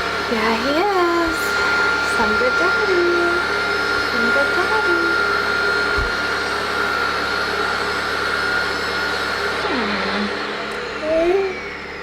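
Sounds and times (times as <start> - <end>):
table saw motor whine: 0.0 - 12.0.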